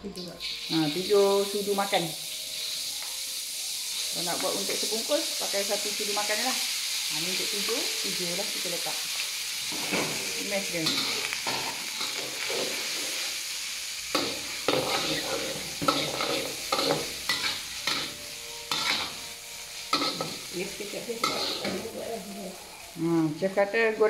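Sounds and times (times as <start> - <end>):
chili paste sizzling in oil: 0.0 - 24.0
metal spatula scraping wok: 9.7 - 13.5, 14.1 - 22.9.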